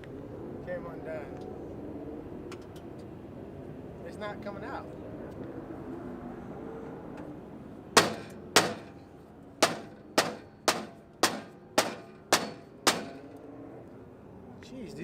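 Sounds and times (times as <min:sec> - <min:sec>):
hammer striking metal: 0:08.0 - 0:09.0, 0:09.6 - 0:13.3.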